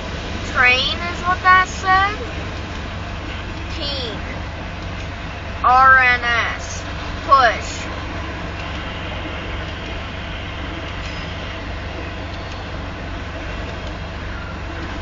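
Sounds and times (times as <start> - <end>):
freight train cars rolling past: 0.0 - 15.0.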